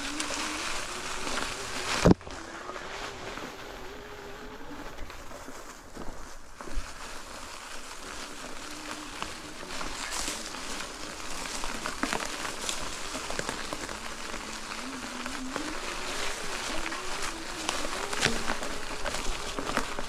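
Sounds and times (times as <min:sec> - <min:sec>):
electric motor whine: 0:00.0 - 0:05.6, 0:06.9 - 0:20.0
tyres rattling over rough ground: 0:00.0 - 0:20.0.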